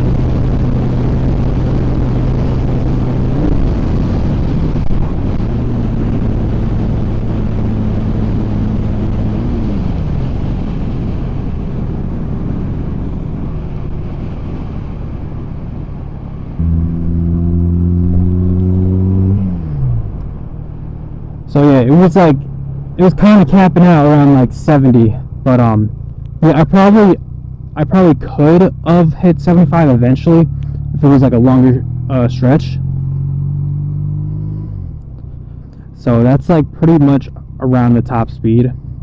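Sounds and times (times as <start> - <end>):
wind rush: 0.0 - 16.6
motorcycle engine drone: 0.0 - 39.0.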